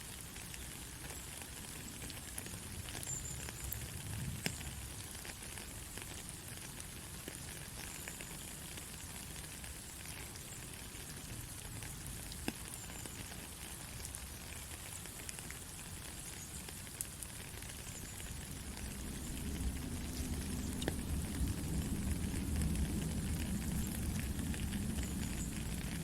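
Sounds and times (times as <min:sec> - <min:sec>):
soft rain: 0:00.0 - 0:26.0.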